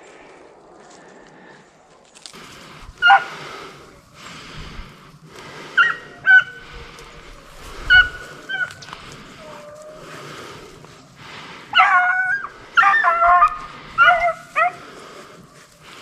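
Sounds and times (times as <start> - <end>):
dog yelping: 3.0 - 3.3, 5.8 - 6.6, 7.9 - 8.9, 11.7 - 14.8.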